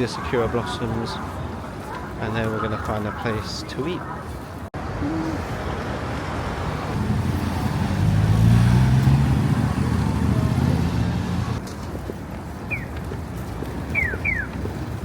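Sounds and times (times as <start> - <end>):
traffic noise: 0.0 - 15.0
vehicle engine hum passing: 4.8 - 11.6.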